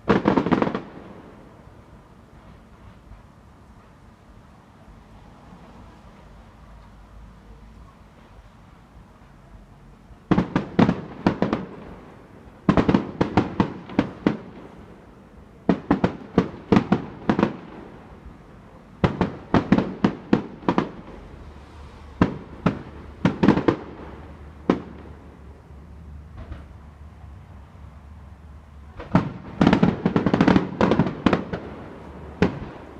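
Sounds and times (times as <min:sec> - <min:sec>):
fireworks bangs: 0:00.0 - 0:03.3, 0:10.2 - 0:25.6, 0:26.3 - 0:26.8, 0:28.9 - 0:32.9.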